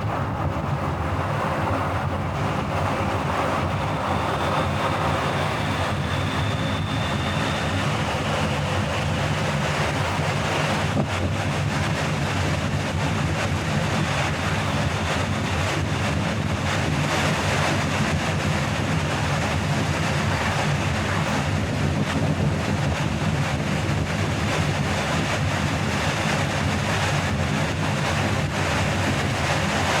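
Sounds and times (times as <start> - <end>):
car road and engine noise: 0.0 - 30.0
wind rush: 0.0 - 30.0.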